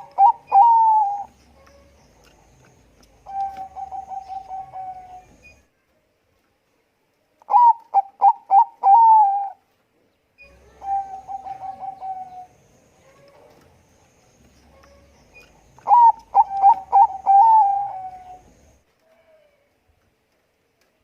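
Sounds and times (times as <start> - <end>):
dove cooing: 0.0 - 5.4, 7.5 - 9.6, 10.4 - 13.6, 14.7 - 18.8.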